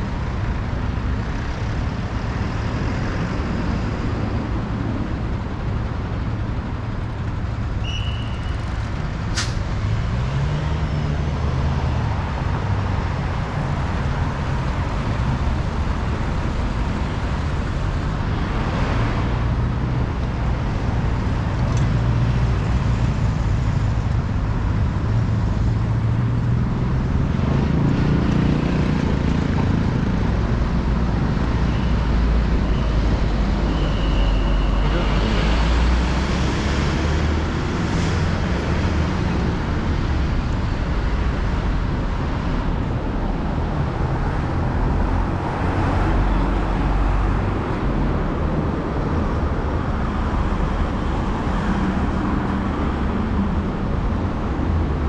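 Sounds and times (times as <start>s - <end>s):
road noise: 0.0s - 55.0s
vehicles passing: 0.0s - 55.0s.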